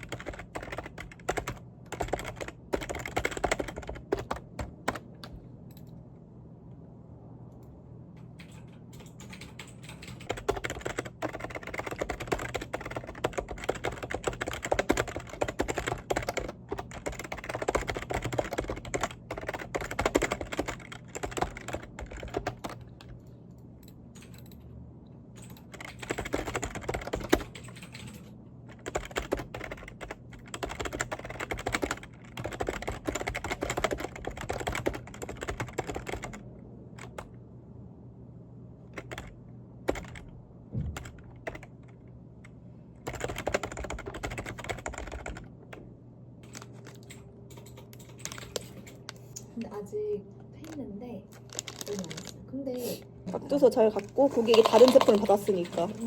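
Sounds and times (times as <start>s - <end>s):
fast typing on keyboard: 0.0s - 5.4s, 8.2s - 23.2s, 25.4s - 36.4s, 37.0s - 37.3s, 38.9s - 42.0s, 43.0s - 45.8s, 46.4s - 49.1s, 53.6s - 56.0s.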